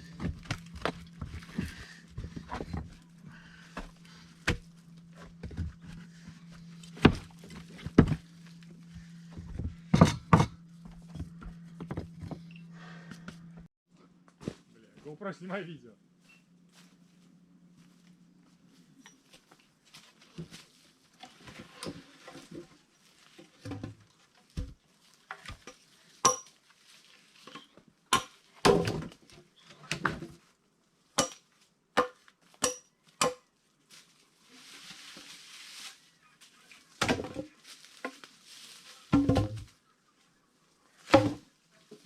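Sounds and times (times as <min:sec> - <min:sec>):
axe striking logs: 0:03.8 - 0:04.8, 0:06.9 - 0:08.2, 0:26.2 - 0:26.5, 0:28.1 - 0:29.1, 0:31.2 - 0:31.4, 0:32.0 - 0:33.4, 0:41.1 - 0:41.4.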